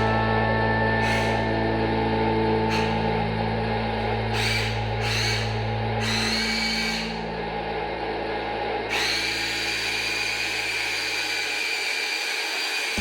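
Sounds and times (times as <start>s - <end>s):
toy electric motors whining: 4.3s - 7.2s, 8.9s - 13.0s.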